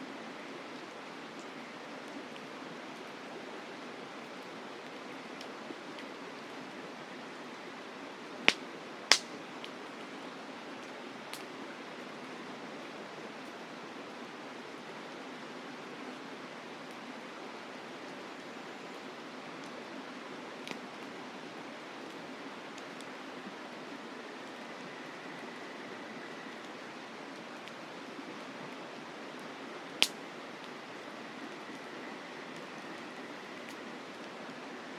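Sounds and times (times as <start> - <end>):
campfire crackling and popping: 8.4 - 9.8, 10.8 - 12.1, 29.4 - 34.4.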